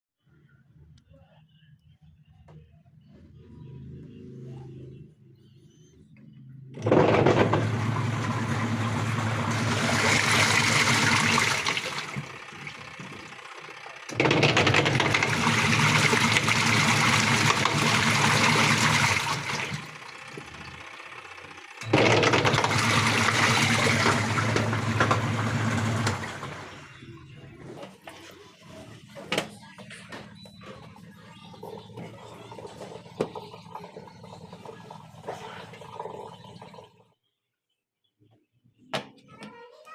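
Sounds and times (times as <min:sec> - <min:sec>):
washing machine motor humming: 0:06.1 - 0:37.2
water churning in tub: 0:06.8 - 0:28.4, 0:30.6 - 0:37.1.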